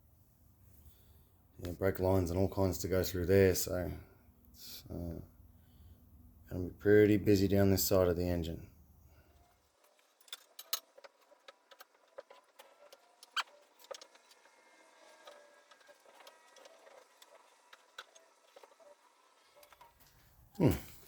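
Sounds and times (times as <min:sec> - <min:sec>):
faint metallic clicks and clinks: 0:09.4 - 0:14.4.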